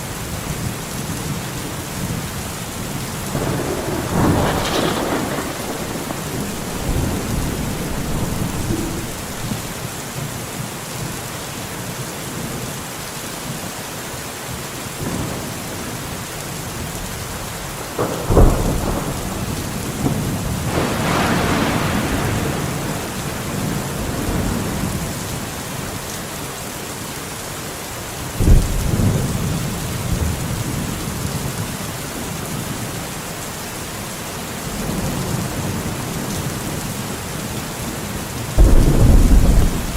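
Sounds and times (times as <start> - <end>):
steady rain falling: 0.0 - 39.9
thunder claps and rumbling: 0.5 - 10.2, 17.0 - 25.8, 28.4 - 32.4, 38.5 - 39.9.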